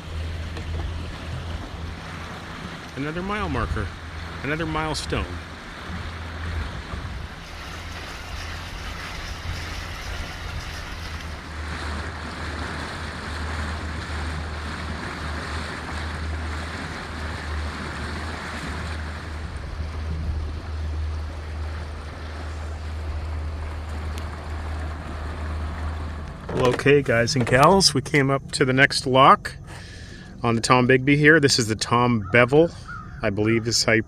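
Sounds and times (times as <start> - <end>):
wind on microphone: 0.0 - 24.9
water rushing past hull: 0.0 - 33.4
boat motor drone: 0.0 - 34.0.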